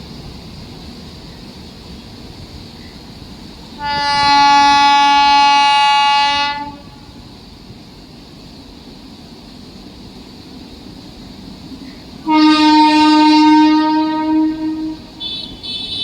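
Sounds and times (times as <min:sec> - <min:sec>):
train horn blast: 0:03.8 - 0:07.2, 0:12.2 - 0:16.0.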